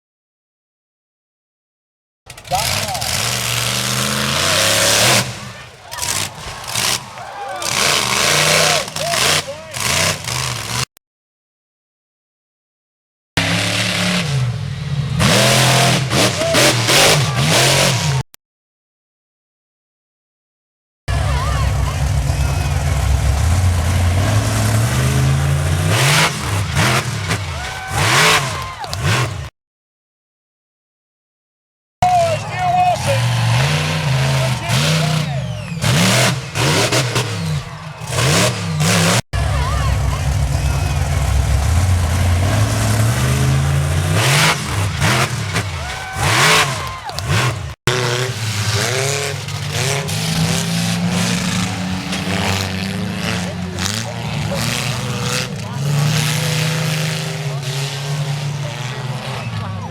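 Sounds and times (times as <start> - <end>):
monster truck engine revving: 2.3 - 10.9, 13.4 - 18.3, 21.1 - 29.5, 32.0 - 59.9.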